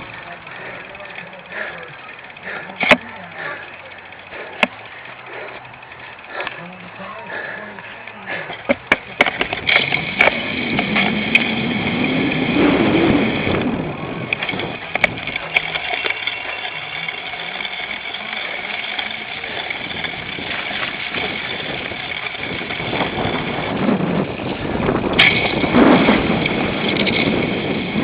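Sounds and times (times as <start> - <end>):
bike knocking and rattling: 0.0 - 28.0
wind and tyre noise: 0.0 - 28.0.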